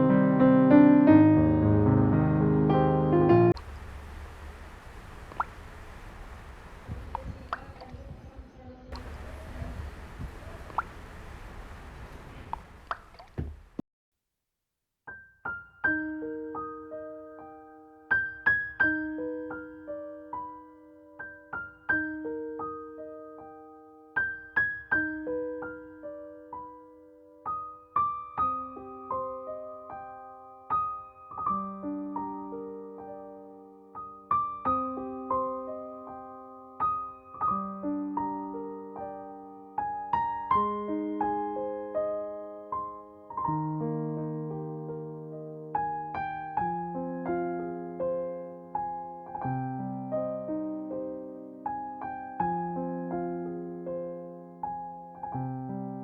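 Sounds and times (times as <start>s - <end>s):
gentle solo piano piece: 0.0s - 3.6s, 15.1s - 56.0s.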